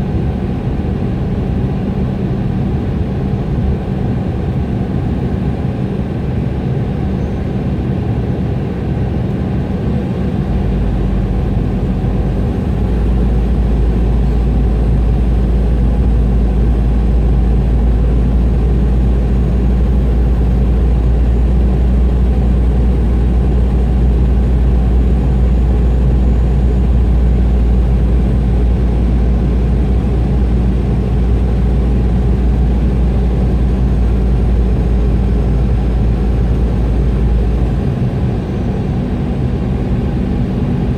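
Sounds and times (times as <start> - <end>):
jet engines droning: 0.0 - 40.9
deep rumble: 10.4 - 40.9.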